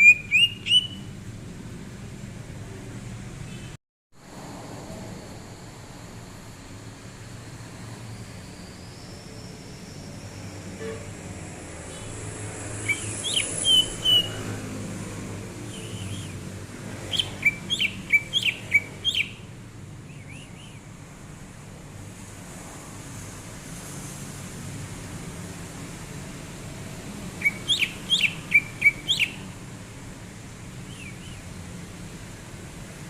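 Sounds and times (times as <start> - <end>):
bird singing whistled notes: 0.0 - 1.1, 12.8 - 14.4, 15.6 - 16.4, 17.1 - 19.5, 20.1 - 20.8, 27.4 - 29.5, 30.9 - 31.4.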